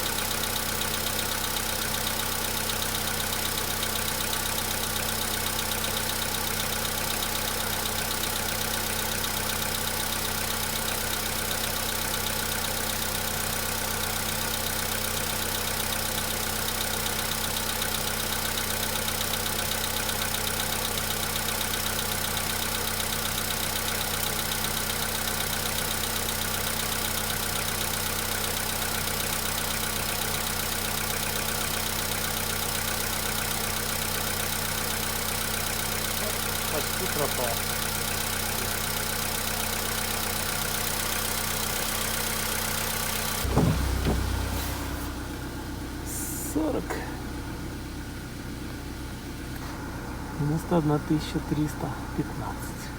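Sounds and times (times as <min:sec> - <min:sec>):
petrol engine idling: 0:00.0 - 0:52.9
fast even engine knocking: 0:32.4 - 0:45.1.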